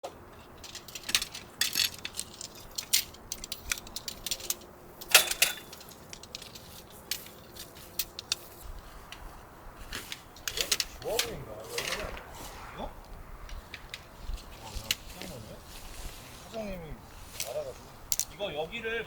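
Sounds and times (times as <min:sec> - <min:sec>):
metallic clinking and jangling: 0:00.4 - 0:08.7.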